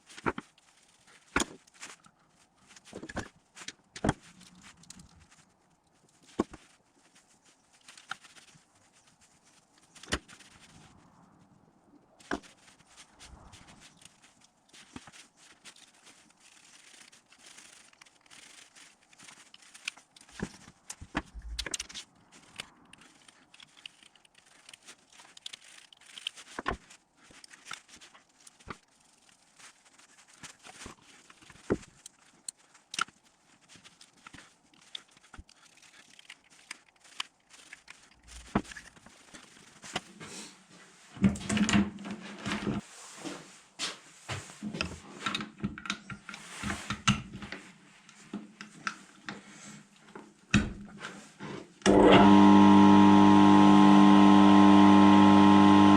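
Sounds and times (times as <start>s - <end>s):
clicks and knocks of handling: 44.5s - 51.4s.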